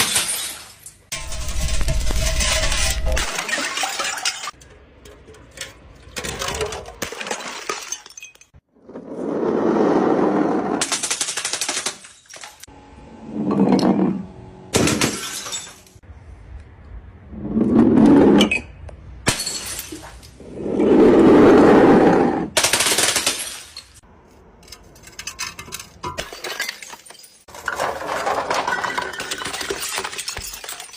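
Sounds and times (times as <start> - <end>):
glass bottles smashing: 0.0 - 4.6, 6.1 - 8.6, 14.8 - 16.0, 19.3 - 20.3, 23.1 - 24.0, 25.0 - 30.9
glass shards tinkling: 28.7 - 30.9.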